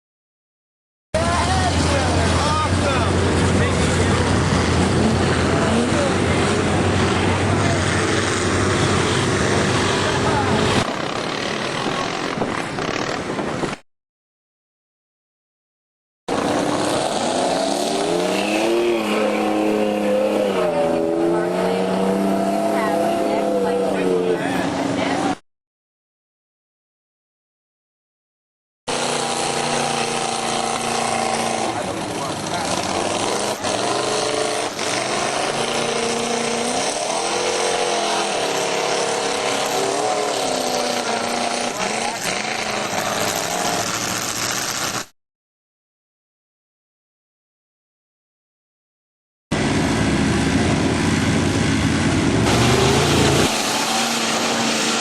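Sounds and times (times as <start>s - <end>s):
off-road vehicle engine revving: 1.2s - 13.7s, 16.3s - 25.4s, 28.9s - 45.1s, 49.5s - 55.0s.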